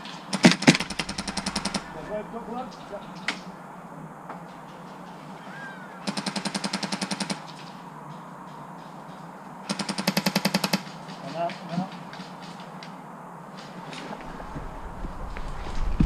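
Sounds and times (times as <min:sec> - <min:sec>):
full-auto airsoft gunfire: 0:00.3 - 0:02.2, 0:06.1 - 0:07.4, 0:09.7 - 0:10.8.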